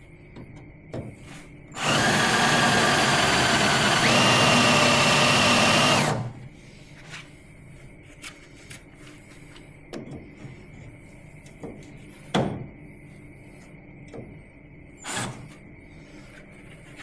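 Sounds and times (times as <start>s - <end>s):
electric drill whining: 1.8s - 6.4s.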